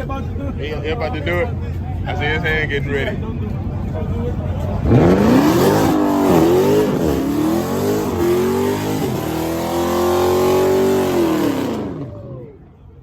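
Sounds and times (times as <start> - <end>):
car engine revving: 4.7 - 12.4.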